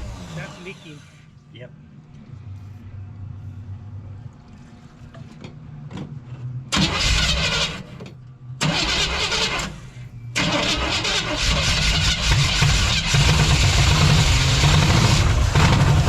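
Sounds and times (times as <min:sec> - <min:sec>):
starter cranking engine: 0:06.8 - 0:07.9, 0:08.6 - 0:09.8, 0:10.4 - 0:16.0
car engine running rough: 0:08.6 - 0:16.0.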